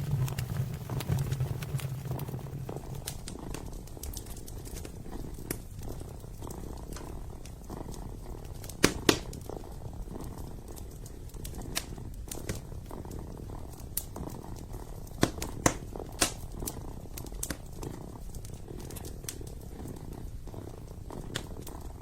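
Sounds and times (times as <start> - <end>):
loud pops of fire: 0.0 - 5.6
fireplace wood crackling: 0.0 - 22.0
kitten purring: 0.0 - 22.0.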